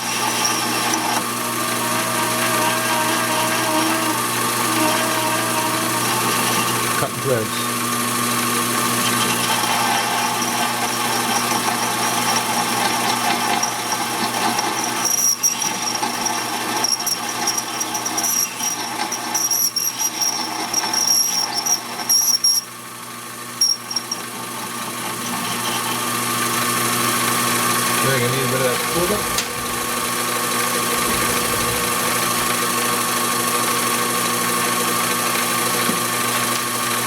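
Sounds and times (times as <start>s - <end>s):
lathe motor hum: 0.0s - 37.0s
high squeal from cutting: 1.9s - 6.8s, 15.0s - 22.7s.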